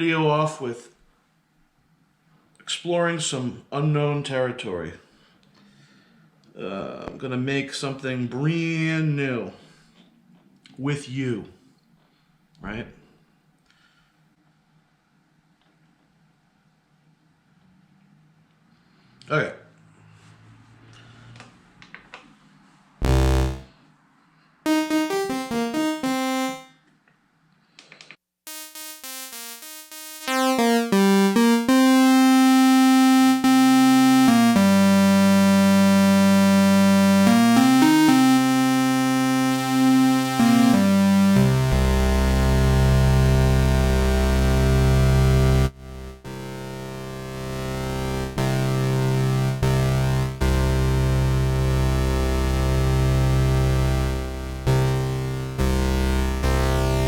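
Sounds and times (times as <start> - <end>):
deep synth bass: 23.0 - 23.7, 24.7 - 26.6, 28.5 - 57.0
synthesizer notes and chords: 23.0 - 23.7, 24.7 - 26.7, 28.5 - 57.0.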